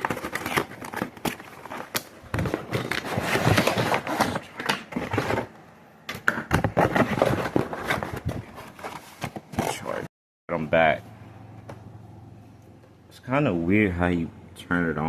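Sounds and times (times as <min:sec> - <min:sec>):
rustling and clattering: 0:06.5 - 0:10.0.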